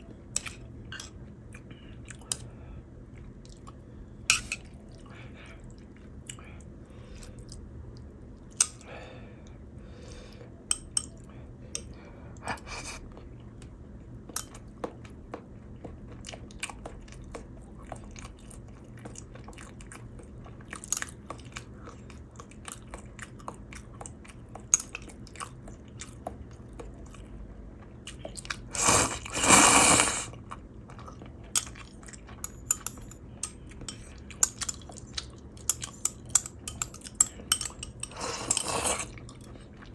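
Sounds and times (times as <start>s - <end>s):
person chewing and crunching: 12.6s - 39.9s.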